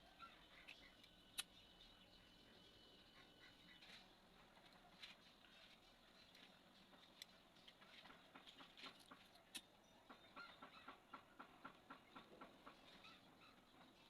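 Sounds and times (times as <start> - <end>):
faint small clicks and taps: 4.6 - 9.7.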